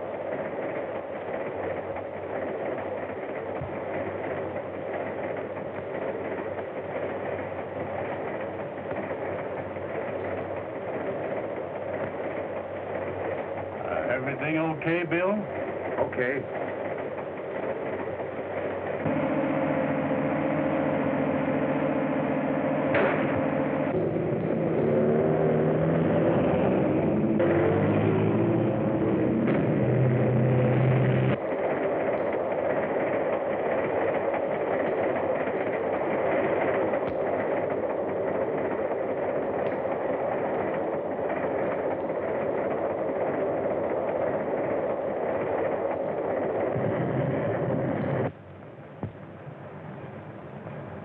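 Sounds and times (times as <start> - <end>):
train rumbling and rattling: 0.0 - 51.0
vehicle engine hum: 19.0 - 31.4.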